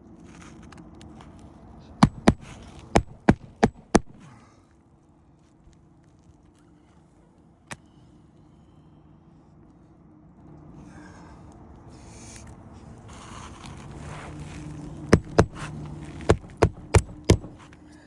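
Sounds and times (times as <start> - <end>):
hammer striking roof shingles: 2.0 - 4.2, 15.1 - 17.8.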